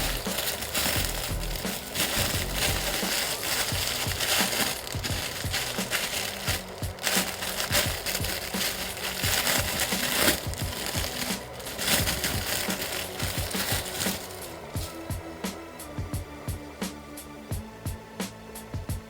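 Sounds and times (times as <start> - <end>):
plastic packaging crinkling: 0.0 - 15.1
background music: 0.0 - 19.0.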